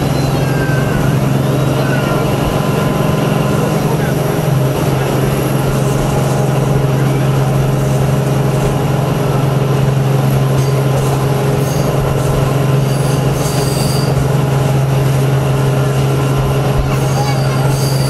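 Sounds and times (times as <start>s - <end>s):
high-pitched train squeals: 0.0s - 4.0s, 10.6s - 14.6s, 16.8s - 18.0s
train drone and rumble: 0.0s - 18.0s.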